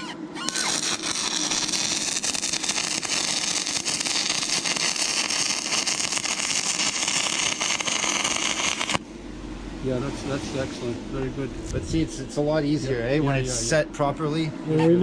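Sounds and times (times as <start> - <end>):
arc welder crackling: 0.4 - 9.0.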